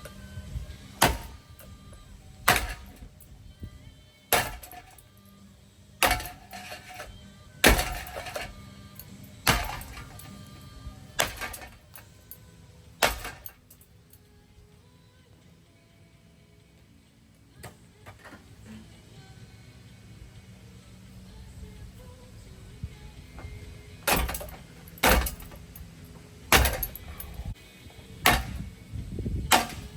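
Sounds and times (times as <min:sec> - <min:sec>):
heavy strikes smashing a fan: 0:00.9 - 0:01.8, 0:02.4 - 0:03.2, 0:04.3 - 0:05.0, 0:06.0 - 0:08.6, 0:09.4 - 0:10.3, 0:11.1 - 0:11.8, 0:13.0 - 0:13.6, 0:24.0 - 0:25.8, 0:26.5 - 0:27.5, 0:28.2 - 0:28.7, 0:29.3 - 0:29.9
clattering ring: 0:23.4 - 0:27.6.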